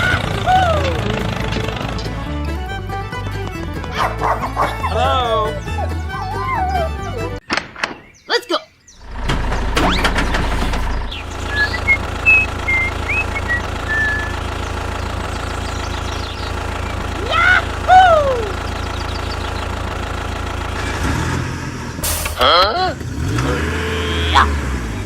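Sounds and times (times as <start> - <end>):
engine idling: 0.0 - 7.4, 9.0 - 25.0
short high chirps: 11.5 - 14.4.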